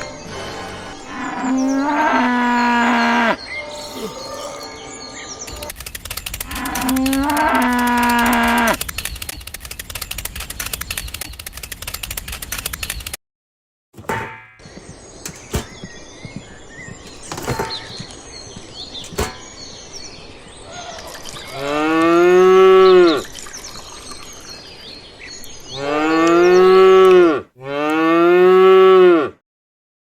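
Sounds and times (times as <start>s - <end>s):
cow mooing: 0.0s - 4.6s, 6.5s - 8.8s, 21.6s - 23.2s, 25.7s - 29.4s
fast even rattle: 5.5s - 13.2s.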